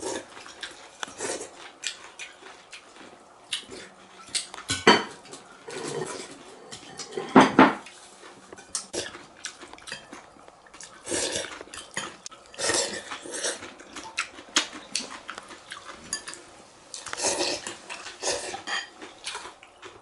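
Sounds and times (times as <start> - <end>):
slurping noodles: 11.0 - 11.6, 12.6 - 13.6.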